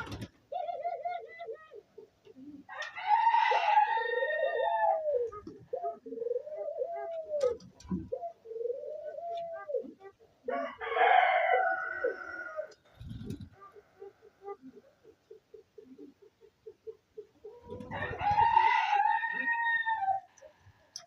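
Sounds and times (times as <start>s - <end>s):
doves cooing: 0.0s - 21.0s
rooster crowing: 2.7s - 5.0s, 10.5s - 12.7s, 17.8s - 20.3s.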